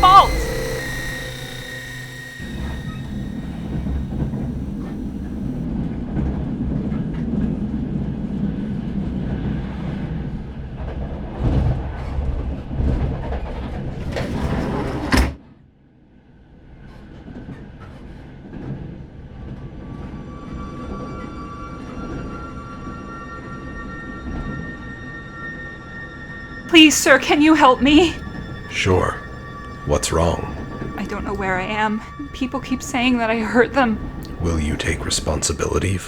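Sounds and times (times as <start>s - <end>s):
train rumbling: 0.0s - 5.6s, 26.7s - 36.0s.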